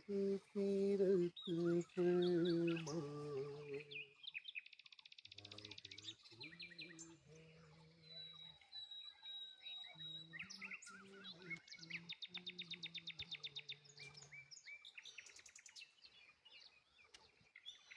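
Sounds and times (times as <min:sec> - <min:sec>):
low steady hum: 0:00.0 - 0:04.0
birds chirping and singing: 0:00.0 - 0:17.9.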